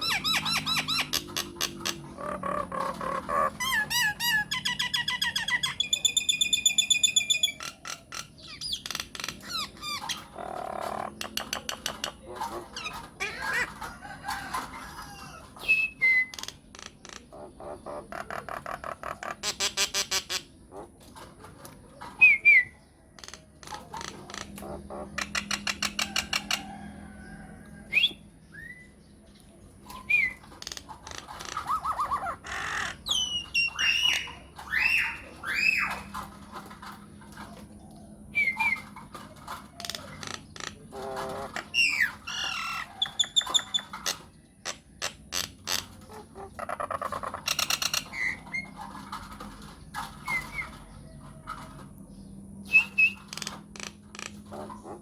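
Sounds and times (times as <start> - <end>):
myna bird calls: 0.0 - 21.3, 21.9 - 37.7.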